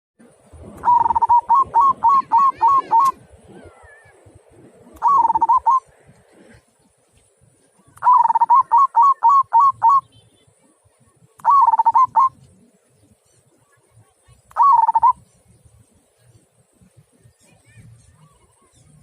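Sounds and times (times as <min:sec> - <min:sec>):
dove cooing: 0:00.8 - 0:04.1, 0:04.8 - 0:05.9, 0:07.8 - 0:10.1, 0:11.4 - 0:12.7, 0:14.6 - 0:15.2.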